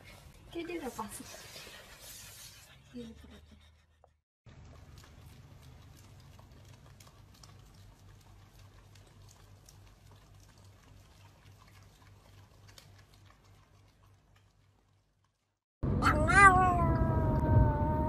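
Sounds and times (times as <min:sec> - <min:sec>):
dogs lapping wetly: 0:04.5 - 0:15.5.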